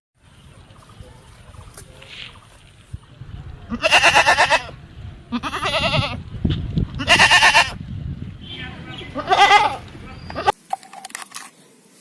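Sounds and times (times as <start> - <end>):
goat bleating: 3.7 - 6.2, 6.9 - 7.8, 9.1 - 10.6.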